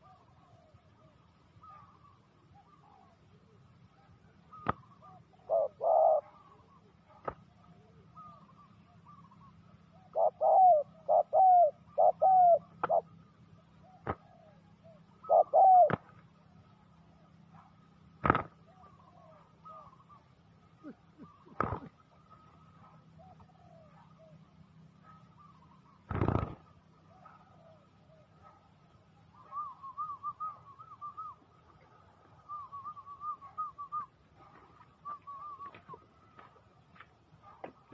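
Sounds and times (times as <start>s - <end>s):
dove cooing: 0.0s - 16.3s, 17.4s - 36.6s
bird whistled calls: 29.3s - 31.5s, 32.4s - 34.2s, 34.9s - 36.0s.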